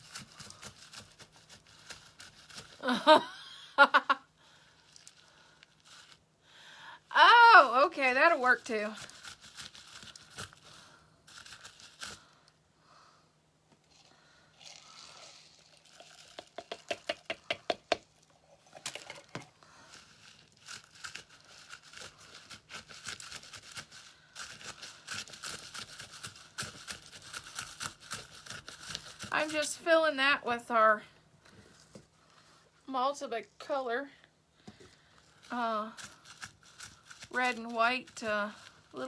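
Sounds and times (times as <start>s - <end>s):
crinkling and light clicking: 4.8s - 6.3s, 18.7s - 29.7s, 34.7s - 39.0s.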